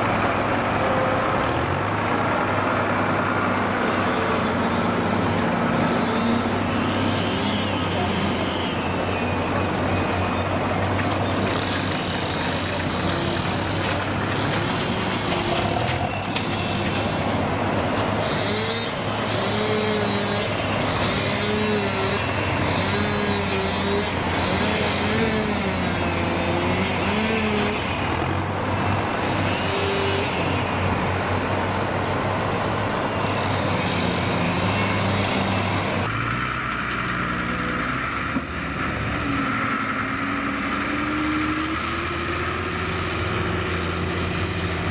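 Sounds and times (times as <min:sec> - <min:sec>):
diesel engines running: 0:00.0 - 0:44.9
engine revving up: 0:17.4 - 0:31.0.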